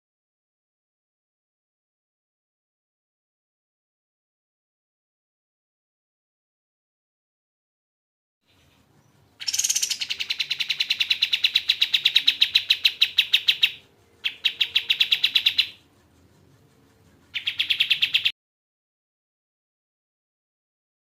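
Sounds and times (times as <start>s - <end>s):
bird singing rapid trill: 8.5s - 15.9s, 17.3s - 18.3s.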